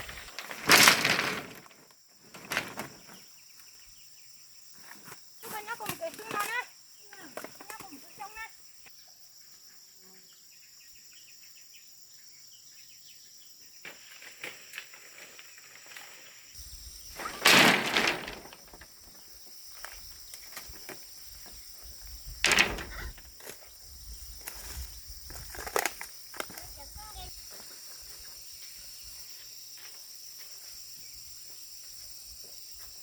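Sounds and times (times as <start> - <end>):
loud rustling crashes: 0.0 - 3.2, 16.9 - 19.0, 22.2 - 23.3.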